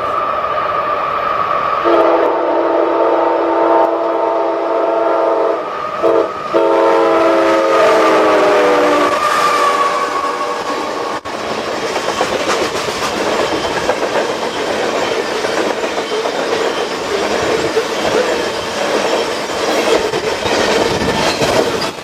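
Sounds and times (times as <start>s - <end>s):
locomotive air horn blasts: 1.8s - 11.2s
train running rumble: 5.1s - 22.0s.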